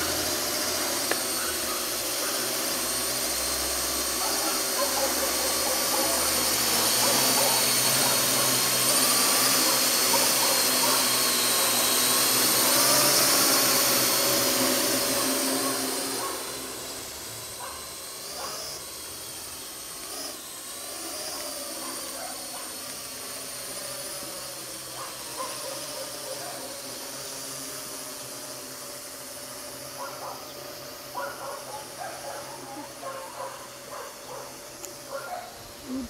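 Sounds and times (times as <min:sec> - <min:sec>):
drone rotors whirring: 0:00.0 - 0:36.0.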